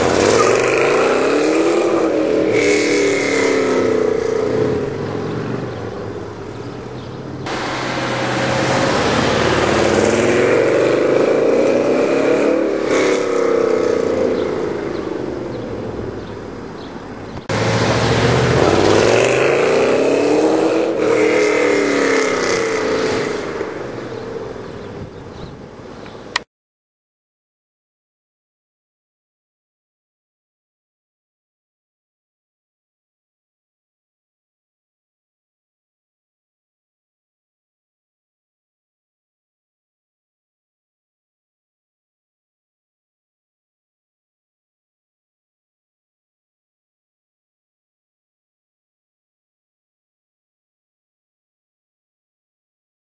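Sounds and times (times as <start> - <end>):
car engine driving past: 6.6 - 14.4, 17.5 - 24.2.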